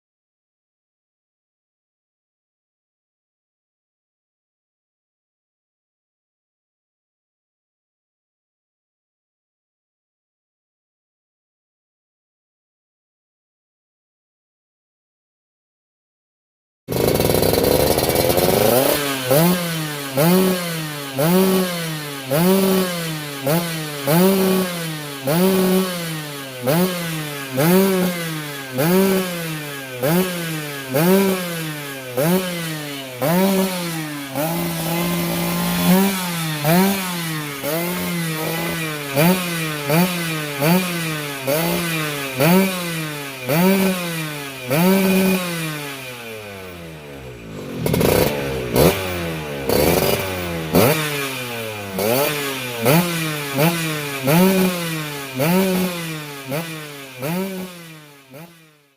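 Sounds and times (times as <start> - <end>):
scooter engine revving: 16.9 - 58.8.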